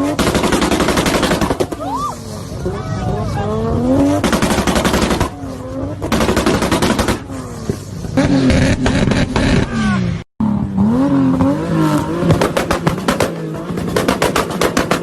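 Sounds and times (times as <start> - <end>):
car engine revving: 0.0 - 15.0
exhaust crackling pops: 4.0 - 9.8, 12.2 - 15.0.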